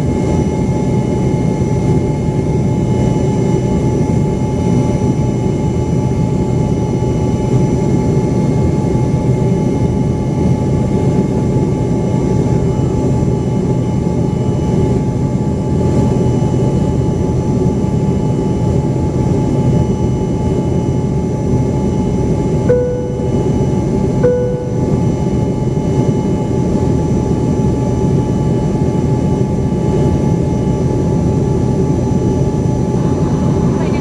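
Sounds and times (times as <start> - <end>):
turbofan whine: 22.7 - 26.5, 29.7 - 34.0.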